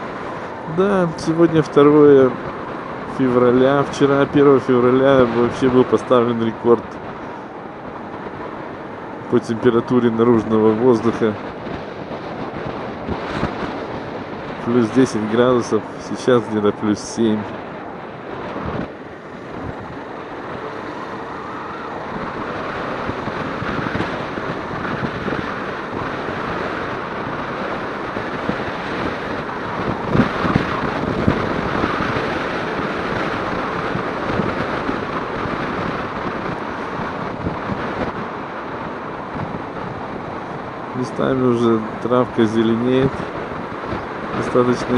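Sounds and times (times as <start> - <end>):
road noise: 0.0 - 44.9
wind rushing over microphone: 0.0 - 44.9
motorcycle running: 17.4 - 44.9.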